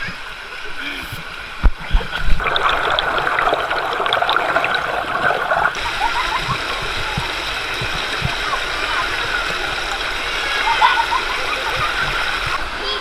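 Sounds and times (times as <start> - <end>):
river rushing over rocks: 2.4 - 5.7.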